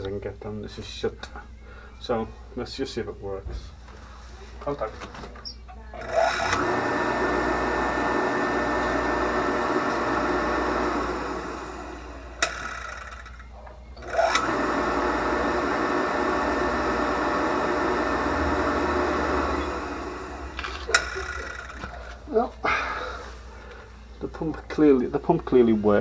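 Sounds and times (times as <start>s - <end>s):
electric water pump running: 6.0s - 22.3s.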